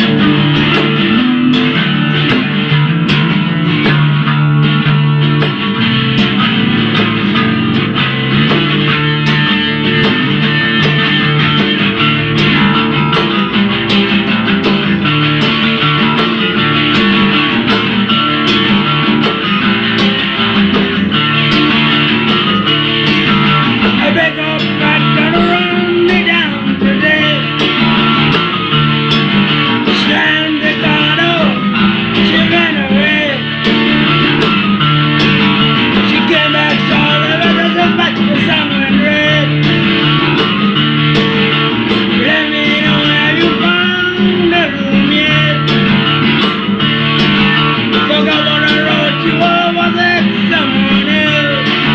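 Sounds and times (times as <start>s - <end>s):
rock music with guitars: 0.0s - 51.9s
person singing: 23.8s - 27.9s, 29.8s - 34.0s, 35.9s - 39.7s, 42.0s - 46.0s, 47.6s - 51.9s.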